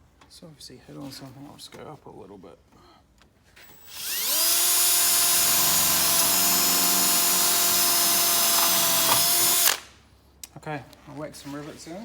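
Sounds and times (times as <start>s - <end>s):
power drill drilling steel: 3.6s - 9.9s.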